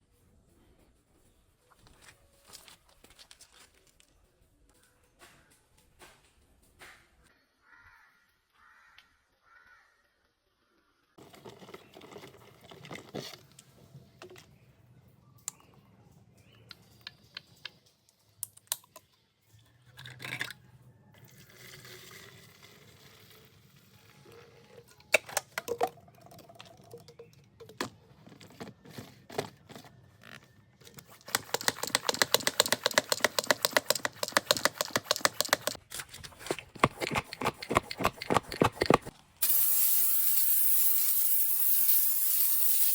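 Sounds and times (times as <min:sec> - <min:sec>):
object being handled clicks: 0:31.2 - 0:39.1
rapid rhythmic clicking rattle: 0:31.3 - 0:35.8.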